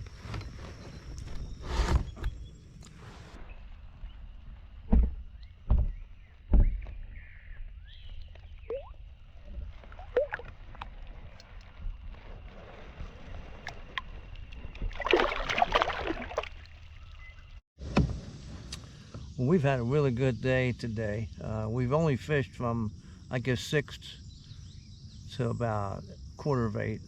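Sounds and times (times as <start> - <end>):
water splashing: 9.8 - 10.8, 12.9 - 17.2.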